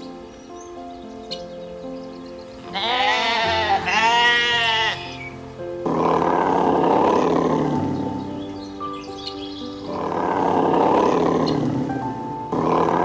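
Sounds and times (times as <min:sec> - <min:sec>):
background music: 0:00.0 - 0:13.0
animal bleating: 0:02.7 - 0:07.8
rough noisy animal call: 0:02.7 - 0:13.0.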